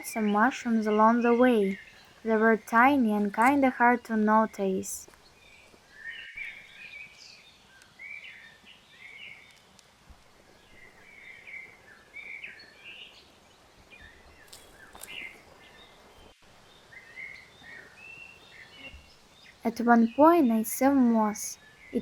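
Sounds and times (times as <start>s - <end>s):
faint background hiss: 0.0s - 22.0s
small birds chirping: 0.0s - 22.0s.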